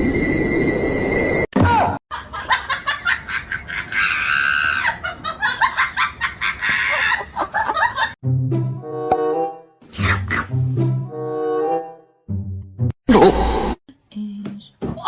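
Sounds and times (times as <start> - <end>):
people laughing: 2.1 - 8.2.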